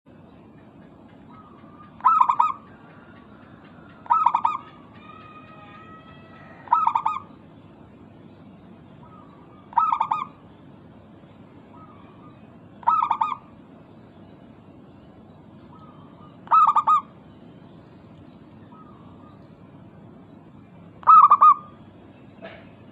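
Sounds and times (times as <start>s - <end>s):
dove trilled cooing: 1.3s - 7.3s, 9.0s - 10.4s, 11.7s - 13.6s, 15.7s - 17.3s, 21.0s - 21.8s.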